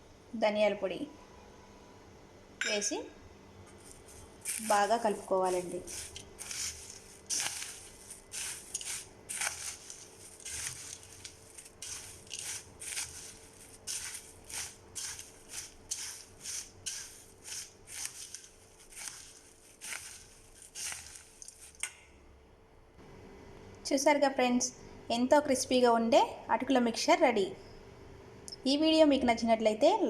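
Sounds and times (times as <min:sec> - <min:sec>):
dry snacks being tossed in a bowl: 0:03.7 - 0:21.9.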